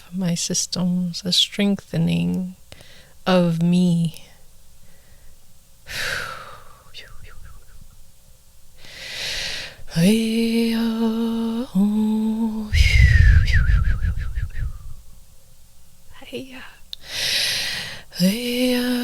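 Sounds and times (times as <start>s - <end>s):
woman humming: 6.0s - 7.9s, 11.6s - 15.0s
woman breathing deeply: 8.8s - 9.8s, 12.7s - 15.0s, 17.0s - 18.0s.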